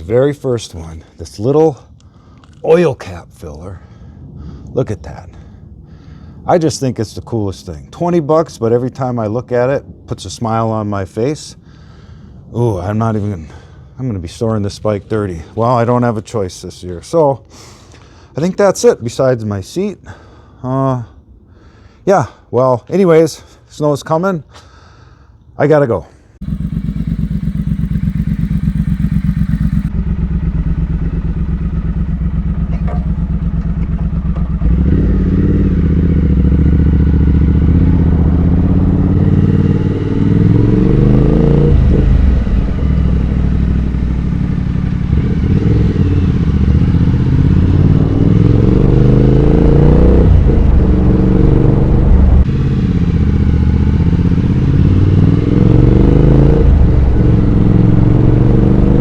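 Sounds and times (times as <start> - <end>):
motorcycle engine accelerating: 26.4 - 59.0.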